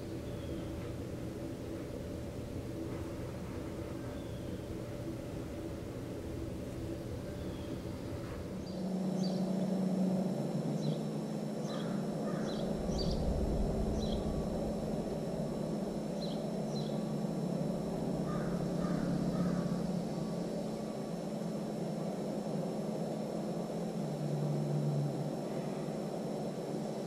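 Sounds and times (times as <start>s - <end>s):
lower bird calls: 0.0s - 9.6s, 11.6s - 17.2s, 17.8s - 21.0s
steady low hum: 0.0s - 27.0s.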